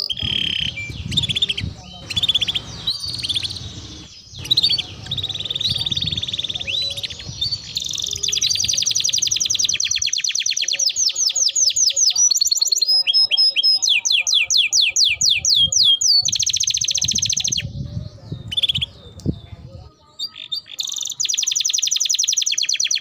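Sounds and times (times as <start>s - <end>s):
canary singing trills: 0.0s - 23.0s.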